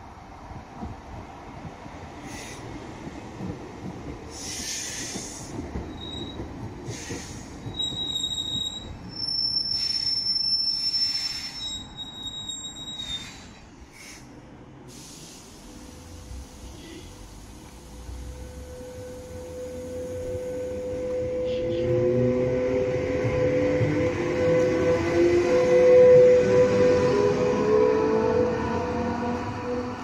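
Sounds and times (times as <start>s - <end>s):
train rumble: 0.0s - 10.1s, 11.1s - 30.0s
high-pitched wheel squeal: 7.0s - 13.6s.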